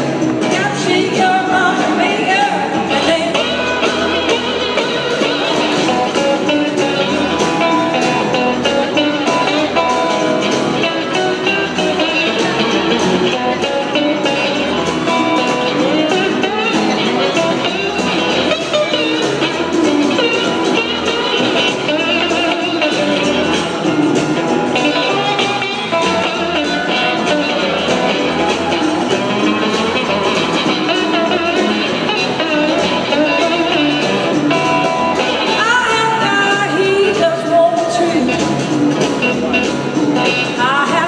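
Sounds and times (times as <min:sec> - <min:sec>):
blues-rock band playing: 0:00.0 - 0:41.0
electric guitar: 0:00.0 - 0:41.0
person singing: 0:00.4 - 0:09.9.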